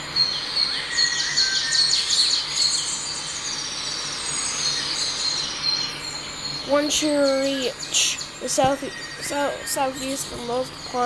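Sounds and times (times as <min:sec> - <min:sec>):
birds chirping and trilling: 0:00.0 - 0:11.0
steady high-pitched tone: 0:02.9 - 0:11.0.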